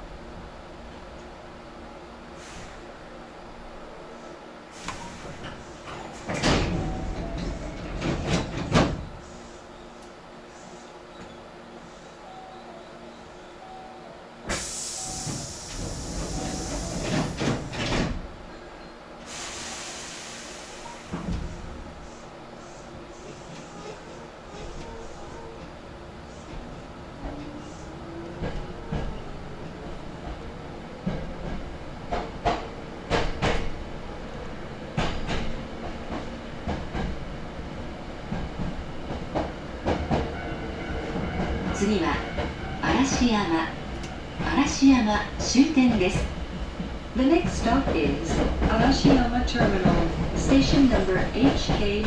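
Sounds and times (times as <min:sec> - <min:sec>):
train interior rumble: 0:00.0 - 0:52.0
train door clunks: 0:04.8 - 0:09.2, 0:14.5 - 0:18.3, 0:20.9 - 0:21.7, 0:31.0 - 0:33.8
compressed air hiss: 0:14.5 - 0:17.6, 0:19.2 - 0:21.2.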